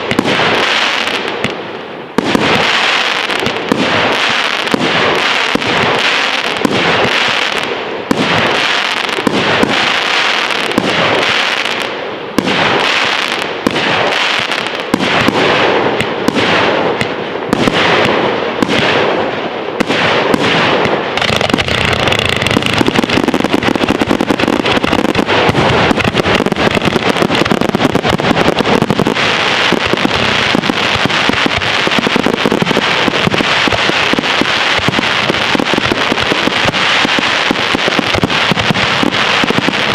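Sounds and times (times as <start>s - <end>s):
fireworks crackling: 0.0s - 39.9s
firework shells bursting: 19.8s - 39.9s.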